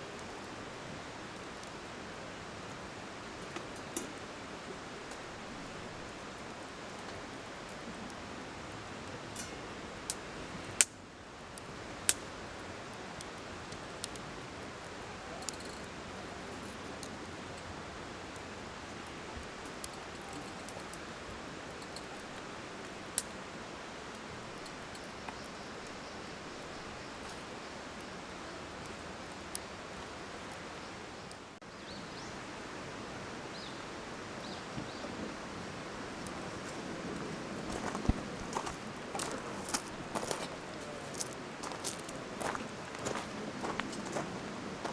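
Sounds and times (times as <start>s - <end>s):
campfire hissing: 0.0s - 44.9s
fire crackling pops: 0.2s - 4.3s, 5.0s - 23.4s, 36.0s - 44.9s.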